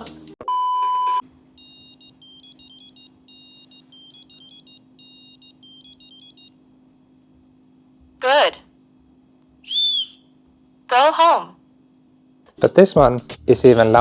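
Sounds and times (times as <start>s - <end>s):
steady low hum: 1.2s - 14.0s
high electronic beeping tune: 1.6s - 6.5s.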